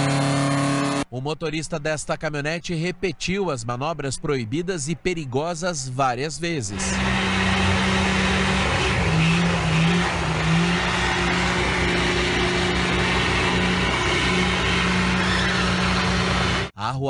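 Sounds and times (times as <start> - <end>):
pickup truck engine revving hard: 0.0 - 1.0, 6.8 - 16.7.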